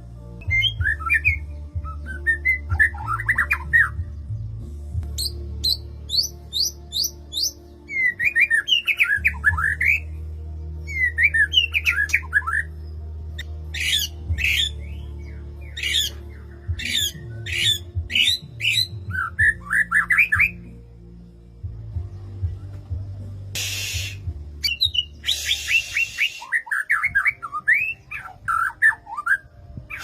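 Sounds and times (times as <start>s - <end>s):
bird harsh squawking calls: 13.8s - 14.8s, 15.8s - 16.2s, 16.8s - 20.3s, 23.6s - 29.2s
bird rising chirps: 23.6s - 29.2s.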